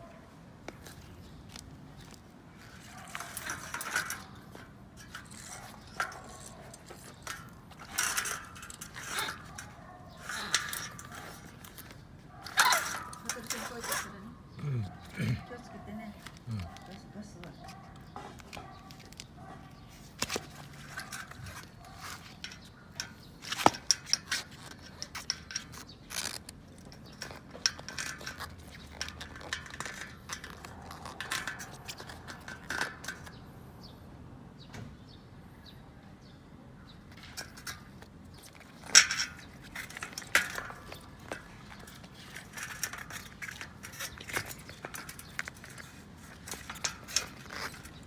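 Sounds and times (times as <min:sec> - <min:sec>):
metal parts and tools clinking: 0:00.8 - 0:33.4, 0:37.1 - 0:48.0
scraping or rubbing: 0:02.6 - 0:15.6, 0:16.2 - 0:33.4.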